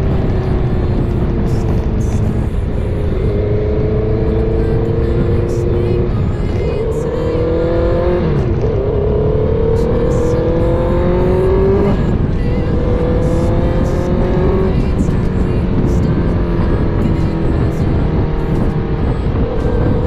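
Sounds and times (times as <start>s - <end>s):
motorcycle engine accelerating: 0.0s - 20.0s
wind noise: 0.0s - 20.0s.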